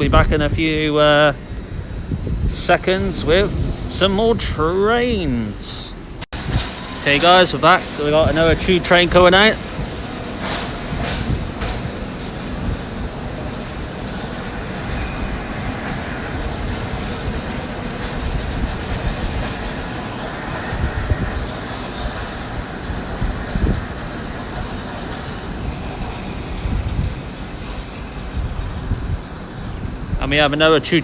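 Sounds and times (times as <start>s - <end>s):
train wheels rumbling: 0.0s - 31.0s
high wheel squeal: 10.4s - 29.2s.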